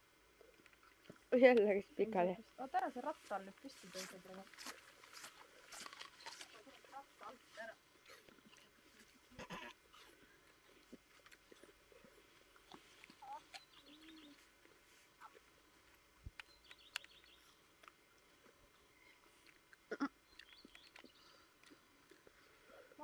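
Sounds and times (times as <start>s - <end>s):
small birds chirping: 1.7s - 8.7s, 9.9s - 15.6s, 16.2s - 18.0s, 18.8s - 22.0s.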